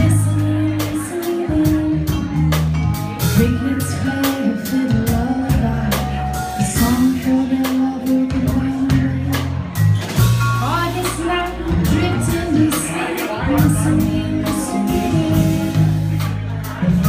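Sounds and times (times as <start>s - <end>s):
drum kit beat: 0.0s - 17.0s
live band music: 0.0s - 17.0s.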